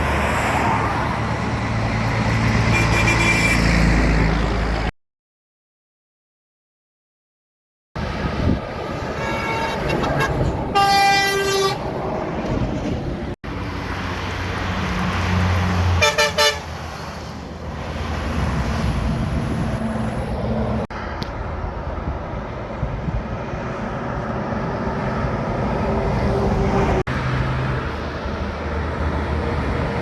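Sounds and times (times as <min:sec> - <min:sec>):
diesel engines and tyre noise: 0:00.0 - 0:04.9, 0:08.0 - 0:30.0
truck air horns: 0:02.6 - 0:03.8, 0:08.9 - 0:11.9, 0:15.9 - 0:16.8.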